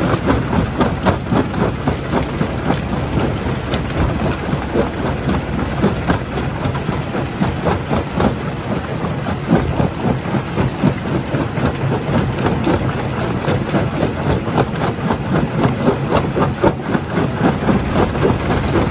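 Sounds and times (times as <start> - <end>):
heavy machine drone: 0.0 - 8.6, 16.8 - 18.9.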